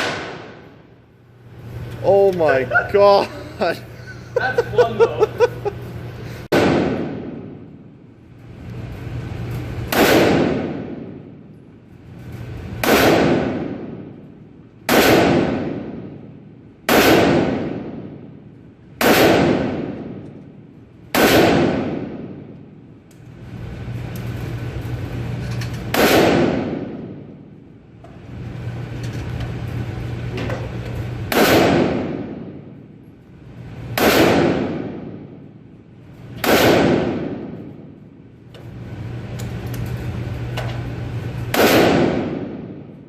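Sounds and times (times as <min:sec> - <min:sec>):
rifle shots echoing: 0:00.0 - 0:00.9, 0:06.5 - 0:08.0, 0:09.8 - 0:11.5, 0:12.8 - 0:14.3, 0:14.9 - 0:22.6, 0:25.9 - 0:27.6, 0:31.3 - 0:32.8, 0:33.9 - 0:35.6, 0:36.4 - 0:38.0, 0:41.5 - 0:42.9.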